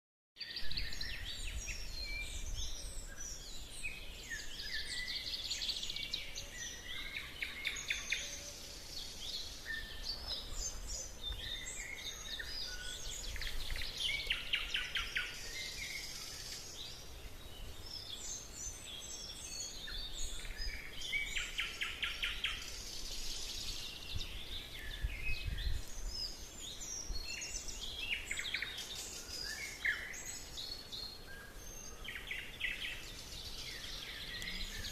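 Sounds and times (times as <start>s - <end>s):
songbirds singing: 0.4s - 34.9s.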